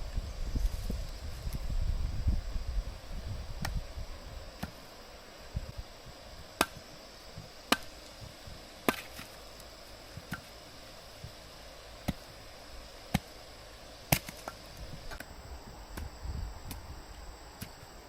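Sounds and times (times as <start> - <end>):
sharp chopping strikes: 6.6 - 6.8, 7.7 - 8.0, 8.8 - 9.3, 10.2 - 10.5, 12.0 - 12.3.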